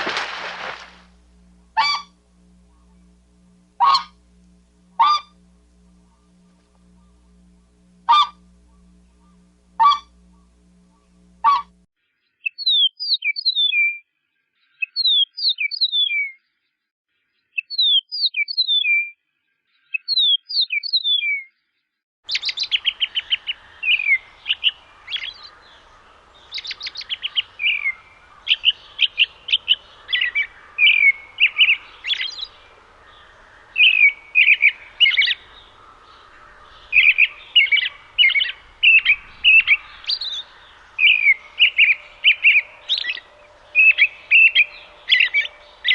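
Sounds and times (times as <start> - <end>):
background hiss: 0.0 - 11.5
songbird downward-slurred notes: 0.0 - 11.9, 22.3 - 45.9
birds chirping and trilling: 0.0 - 45.9.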